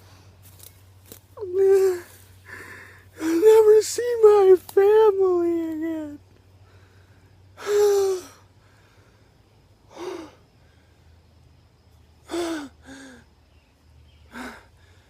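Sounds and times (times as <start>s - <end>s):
man sobbing: 1.4s - 3.7s, 7.6s - 8.4s, 12.3s - 13.2s
breathy gasps: 2.4s - 3.1s.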